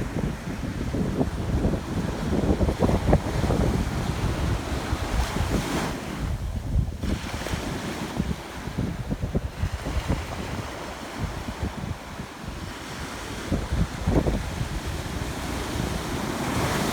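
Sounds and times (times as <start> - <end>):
sea waves breaking on beach: 0.0 - 16.9
wind buffeting microphone: 0.0 - 16.9.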